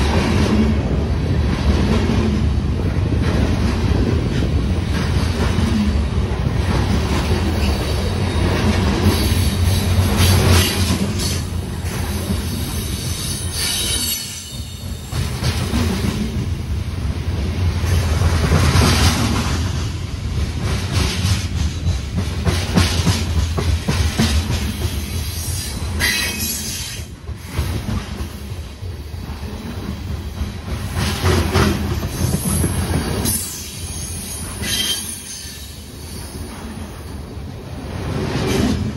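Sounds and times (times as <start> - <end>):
train wheels rumbling on rail: 0.0 - 38.9
high wheel squeal: 12.8 - 15.4, 33.3 - 37.2.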